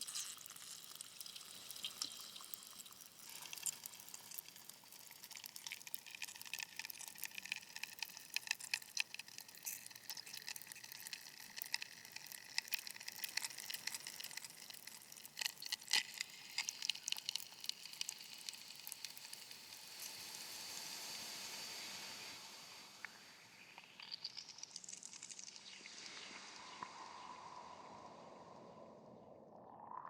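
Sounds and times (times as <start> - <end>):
smooth hiss: 16.2 - 30.0.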